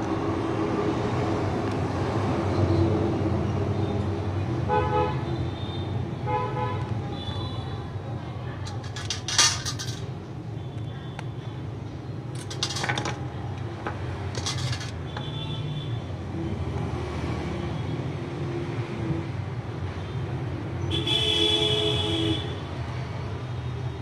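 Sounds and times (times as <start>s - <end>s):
street traffic hum: 0.0s - 24.0s
light metallic clinks and clatter: 8.6s - 10.1s, 12.3s - 13.3s, 14.3s - 15.0s.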